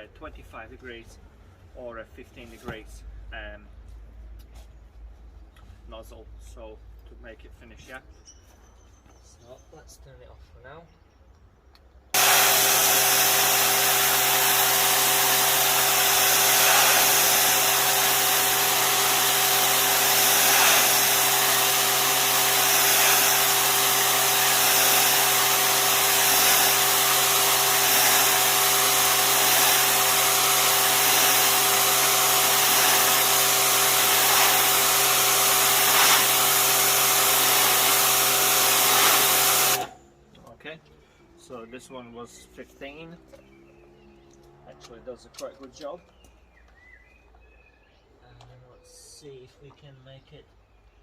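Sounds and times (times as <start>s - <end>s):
high-pressure water jet hissing: 12.2s - 40.0s
pressure washer motor hum: 12.2s - 40.1s.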